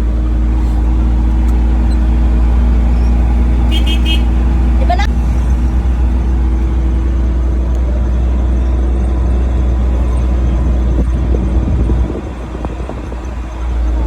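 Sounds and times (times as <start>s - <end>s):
vehicle low rumble: 0.0s - 14.0s.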